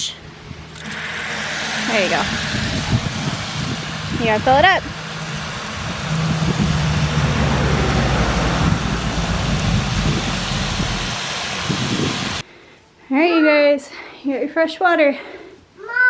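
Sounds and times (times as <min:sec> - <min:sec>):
low hum: 0:00.0 - 0:12.4
water spraying from hose: 0:00.7 - 0:12.4.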